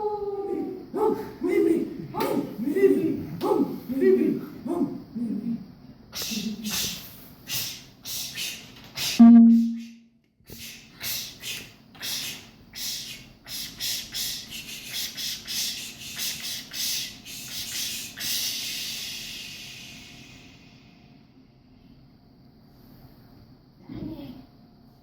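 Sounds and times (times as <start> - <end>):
loud low tone: 9.2 - 9.9
scratchy hissing strokes: 10.5 - 20.5.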